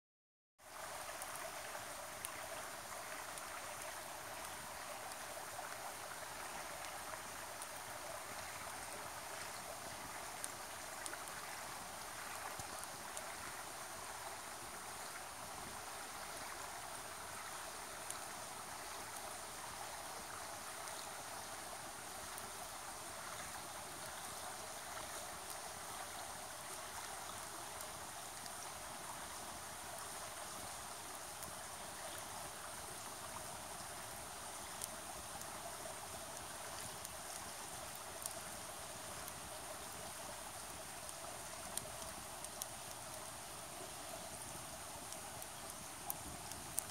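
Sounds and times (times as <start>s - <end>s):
river water gurgling: 0.6s - 46.9s
faint sharp ticks: 29.9s - 32.3s, 33.8s - 46.9s.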